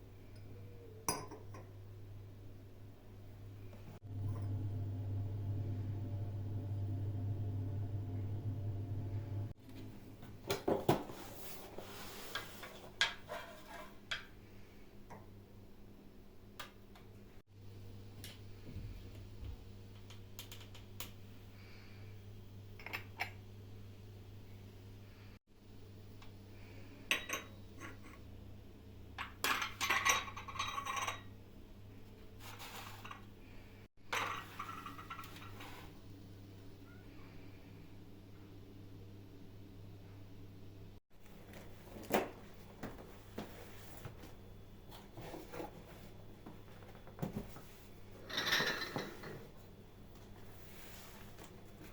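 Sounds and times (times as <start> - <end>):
low hum: 3.8 - 9.6
dishes and cutlery clinking: 29.2 - 31.3, 34.1 - 35.7, 48.2 - 49.5.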